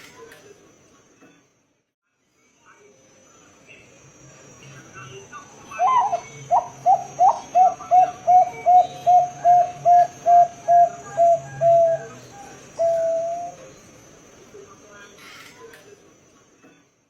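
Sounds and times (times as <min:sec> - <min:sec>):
dove cooing: 0:05.8 - 0:13.7.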